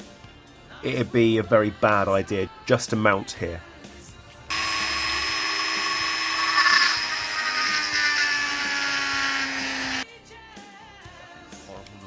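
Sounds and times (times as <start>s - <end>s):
electric drill motor whining: 4.5s - 10.0s.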